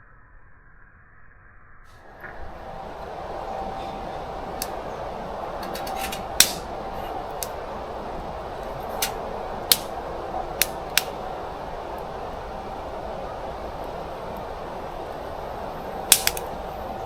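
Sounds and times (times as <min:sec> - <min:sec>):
steady background rumble: 0:02.0 - 0:17.0
sharp clicks and snaps: 0:05.5 - 0:15.2, 0:16.0 - 0:16.8.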